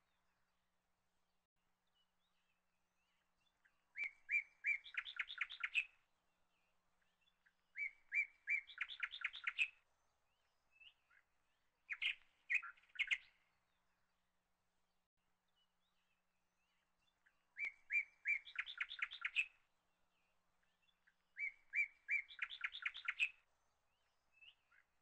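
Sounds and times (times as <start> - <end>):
songbird singing trills: 3.0 - 6.0, 7.0 - 11.2, 11.9 - 13.5, 15.6 - 19.6, 20.6 - 24.9.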